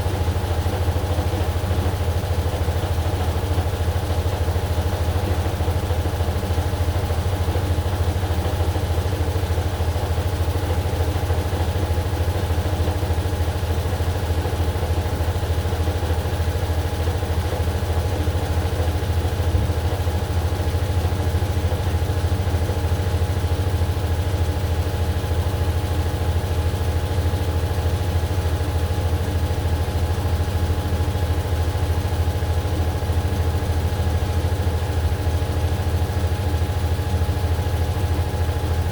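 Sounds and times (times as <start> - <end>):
washing machine running: 0.0 - 38.9.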